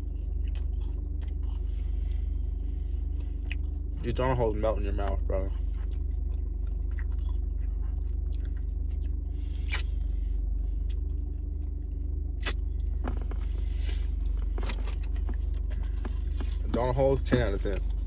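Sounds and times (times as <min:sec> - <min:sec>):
low hum: 0:00.0 - 0:18.0
person chewing with mouth smacks: 0:00.4 - 0:02.2, 0:03.2 - 0:03.8, 0:05.6 - 0:10.0.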